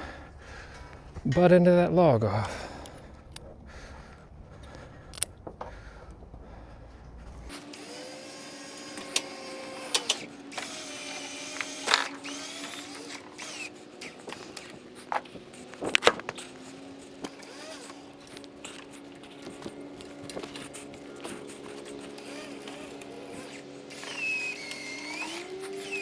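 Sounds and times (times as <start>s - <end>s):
winch mechanical hum: 7.4s - 26.0s
creaks clicks and knocks: 7.6s - 26.0s.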